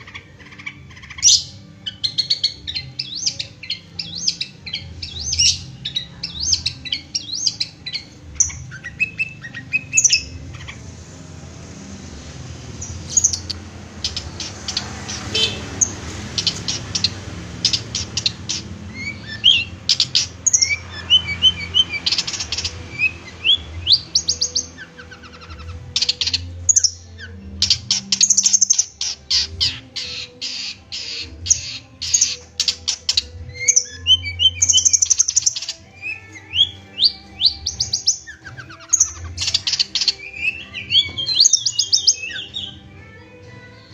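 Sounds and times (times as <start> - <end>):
bird chattering and whistling: 13.1 - 42.8.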